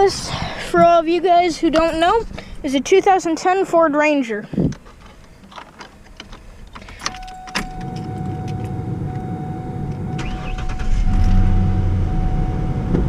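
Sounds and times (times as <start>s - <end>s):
thin steady whine: 0.0s - 13.0s
key and control clicks: 5.4s - 8.8s
truck engine starting and running: 5.6s - 13.0s.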